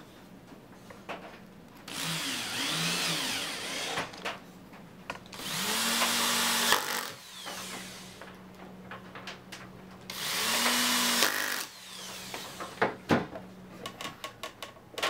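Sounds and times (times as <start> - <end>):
power tool motor spinning up: 1.9 - 4.1, 5.4 - 8.2, 10.1 - 12.8.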